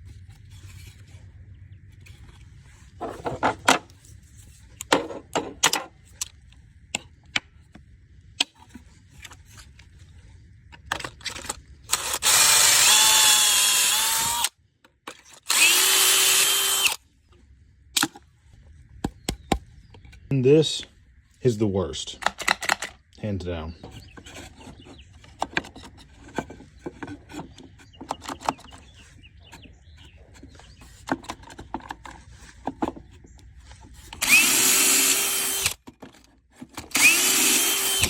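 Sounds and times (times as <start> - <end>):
power drill boring: 11.9 - 14.5, 15.5 - 17.0, 34.2 - 35.8, 36.9 - 38.0
clicks and knocks of a jig: 23.8 - 34.2.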